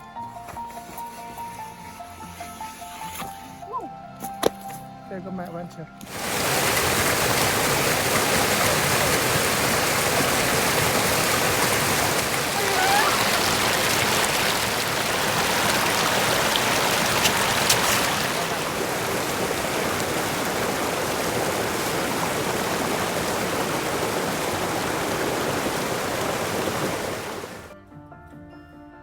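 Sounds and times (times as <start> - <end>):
stream rushing over rocks: 6.1 - 27.8.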